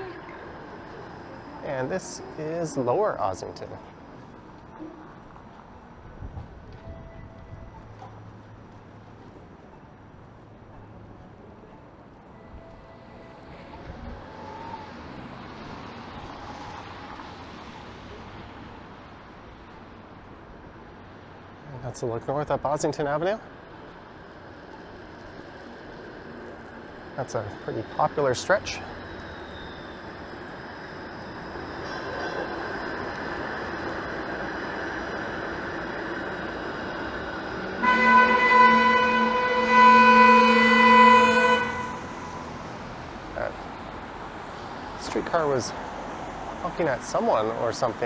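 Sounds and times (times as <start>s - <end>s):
streetcar rumbling on rails: 0.0s - 48.0s
car tyres hissing on wet street: 34.5s - 35.2s, 37.6s - 48.0s.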